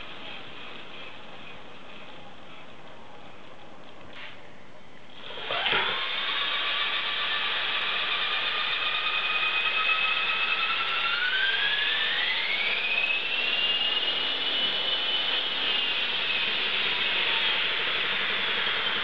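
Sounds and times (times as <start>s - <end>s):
whining electric motor: 5.2s - 19.0s
helicopter rotor noise: 5.4s - 19.0s.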